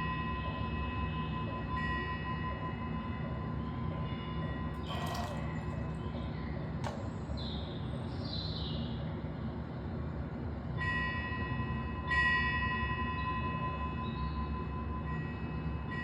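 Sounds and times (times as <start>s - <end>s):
bell ringing: 4.8s - 5.8s.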